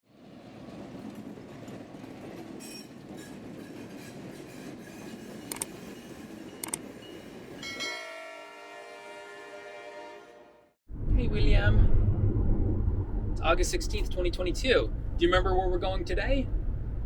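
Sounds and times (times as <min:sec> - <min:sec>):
freight train rumbling past: 0:00.1 - 0:17.0
sharp clicks: 0:05.5 - 0:05.7, 0:06.6 - 0:06.8.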